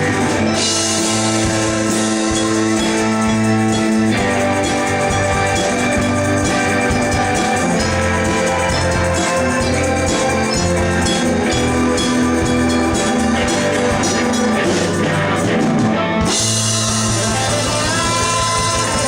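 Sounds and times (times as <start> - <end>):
music playing: 0.0 - 19.0.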